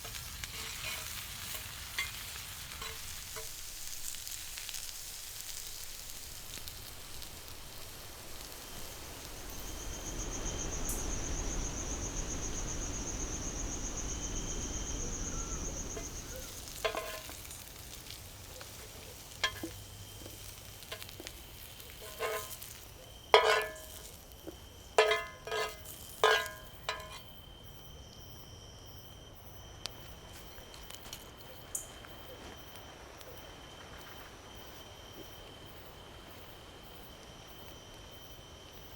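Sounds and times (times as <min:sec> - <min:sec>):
food sizzling in a pot: 0:00.0 - 0:27.3
insects chirping: 0:00.0 - 0:38.9
utensil clinking on cookware: 0:16.0 - 0:17.4, 0:19.4 - 0:19.8, 0:22.0 - 0:24.1, 0:25.0 - 0:27.3.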